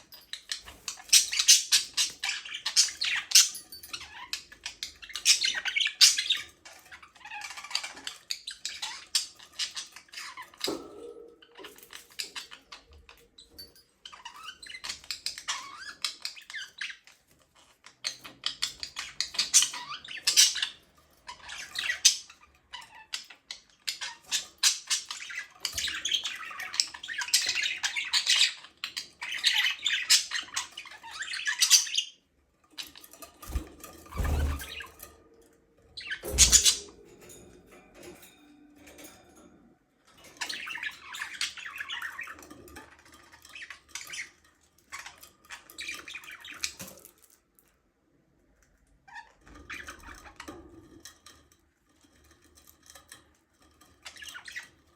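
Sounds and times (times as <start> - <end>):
budgerigars chattering and chirping: 36.0 - 36.8.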